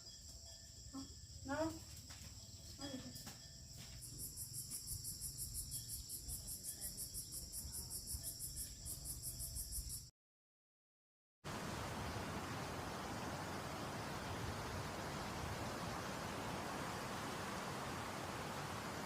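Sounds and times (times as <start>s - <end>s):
insects chirping: 0.0s - 10.1s, 11.5s - 19.0s
steady hiss: 11.5s - 19.0s.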